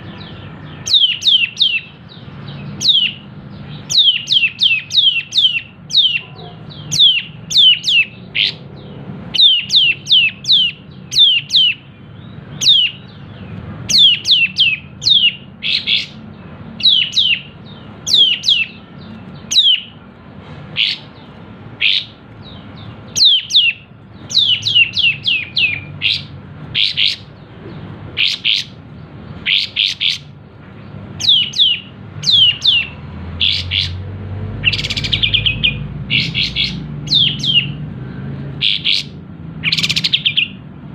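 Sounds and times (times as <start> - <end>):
bird singing sharp notes: 0.0 - 20.0, 20.7 - 28.8, 31.2 - 37.8.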